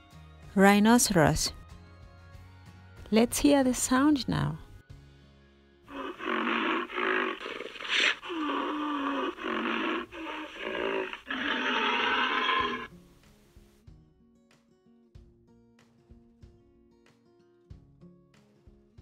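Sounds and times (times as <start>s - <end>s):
rhinoceros grunting and bellowing: 5.9s - 12.9s.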